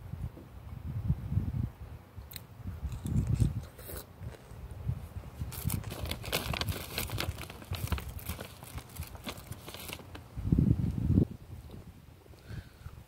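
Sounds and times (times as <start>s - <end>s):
wind rumble on microphone: 0.0s - 13.0s
chewing crunchy chip: 2.3s - 4.6s, 5.5s - 10.0s.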